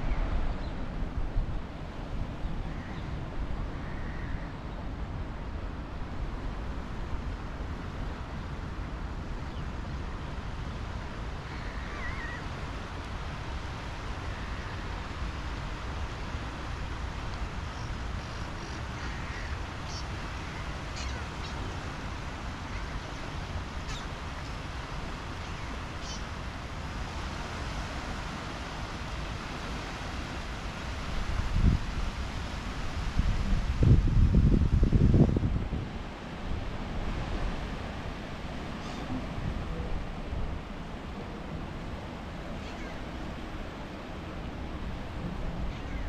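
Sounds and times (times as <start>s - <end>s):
birds calling: 17.7s - 21.8s, 22.7s - 24.7s, 25.4s - 26.3s, 42.6s - 43.1s, 45.6s - 46.0s.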